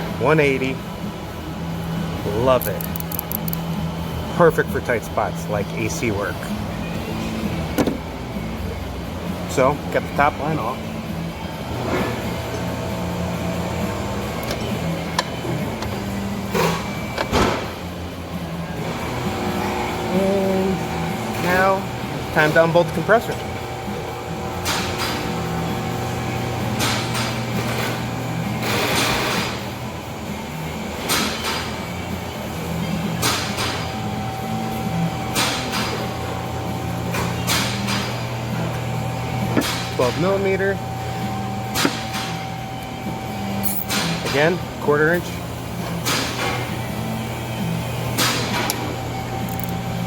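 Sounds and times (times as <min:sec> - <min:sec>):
steady low hum: 0:00.0 - 0:50.0
metallic clicks of hand tools: 0:02.6 - 0:03.7.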